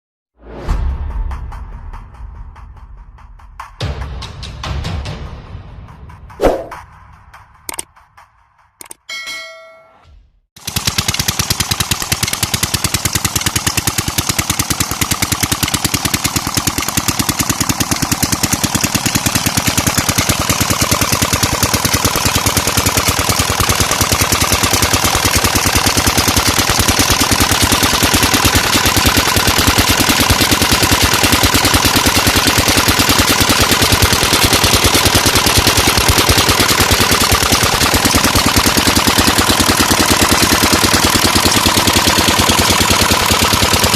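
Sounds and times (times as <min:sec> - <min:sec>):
diesel engine running: 0:10.6 - 0:43.9.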